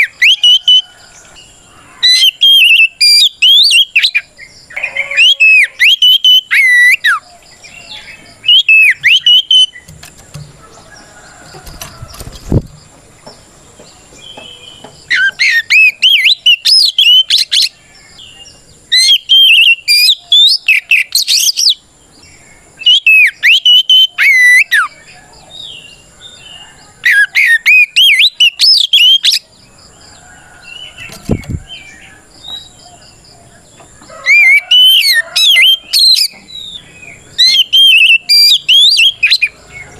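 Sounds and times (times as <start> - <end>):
bird singing whistled phrases: 2.1 - 7.2, 7.9 - 9.9, 14.4 - 17.7, 18.9 - 21.8, 22.8 - 25.0, 27.1 - 29.4, 37.4 - 39.5.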